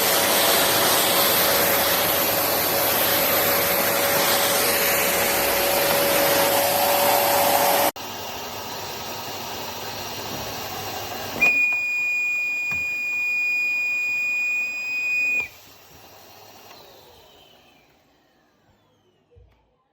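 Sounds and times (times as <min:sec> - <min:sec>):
vacuum cleaner running: 0:00.0 - 0:19.6
high whistle: 0:11.4 - 0:15.5
motor winding down: 0:16.6 - 0:19.4.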